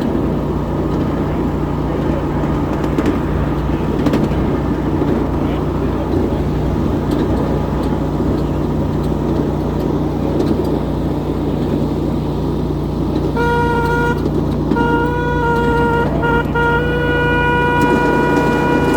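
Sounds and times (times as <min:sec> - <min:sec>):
train horn blast: 0:00.0 - 0:08.4, 0:13.2 - 0:18.9
miniature train rumbling on track: 0:00.0 - 0:18.9.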